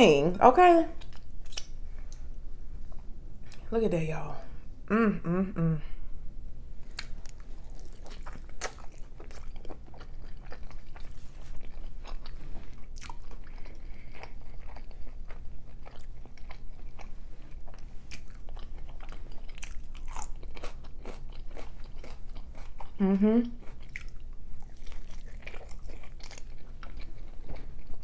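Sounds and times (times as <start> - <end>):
chewing with mouth clicks: 1.0 - 3.6, 6.9 - 28.0
biting into taco: 6.9 - 28.0.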